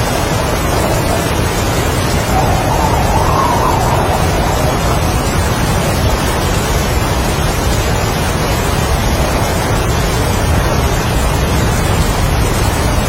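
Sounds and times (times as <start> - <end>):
heavy rain: 0.0 - 13.0
strong wind: 0.0 - 13.0.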